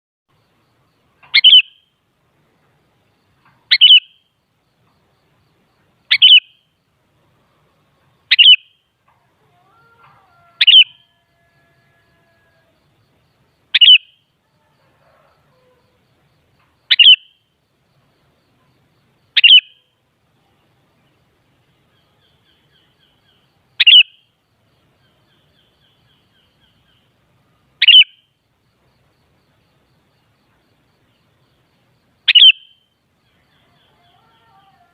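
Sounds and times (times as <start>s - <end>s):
bird giving short high calls: 10.4s - 11.2s, 27.8s - 28.2s, 32.3s - 32.8s.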